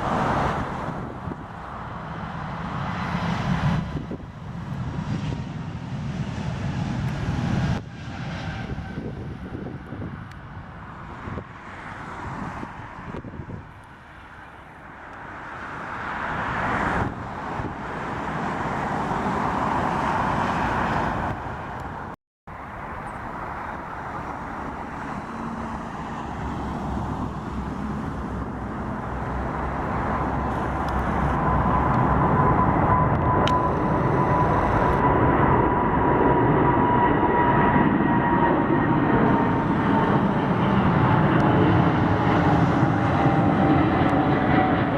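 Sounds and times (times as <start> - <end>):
jet aircraft engine noise: 0.0 - 44.9
high engine whine: 14.9 - 44.9.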